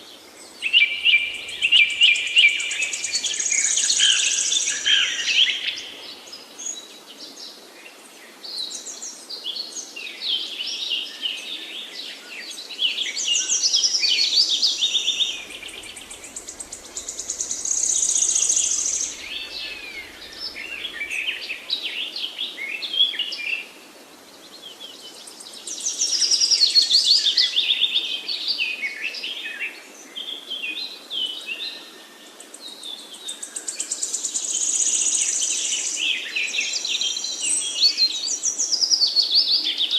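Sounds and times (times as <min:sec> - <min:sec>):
songbirds singing: 0:00.0 - 0:23.7.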